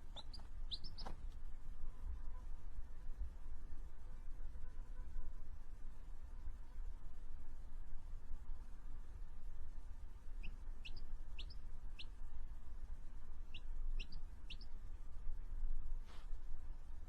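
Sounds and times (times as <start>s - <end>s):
small bird chirping: 0.0s - 1.2s, 10.3s - 12.2s, 13.4s - 14.8s.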